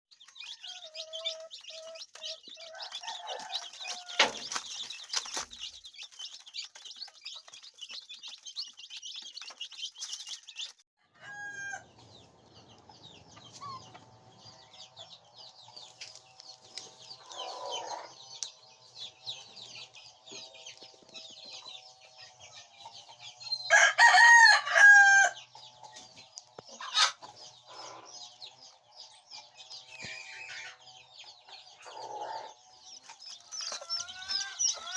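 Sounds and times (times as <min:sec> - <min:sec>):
high chirping: 0:00.1 - 0:10.8, 0:25.4 - 0:34.9
chickens clucking: 0:00.1 - 0:34.9
rooster crowing: 0:02.6 - 0:04.5, 0:11.0 - 0:11.9, 0:23.7 - 0:25.4.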